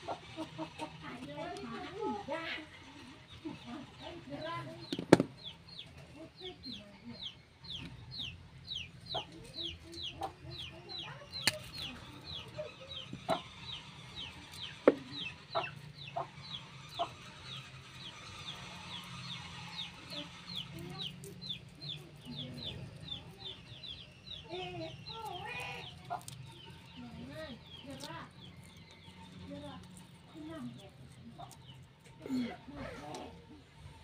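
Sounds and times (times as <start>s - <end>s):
birds chirping: 0.0s - 34.0s
birds clucking: 0.0s - 34.0s.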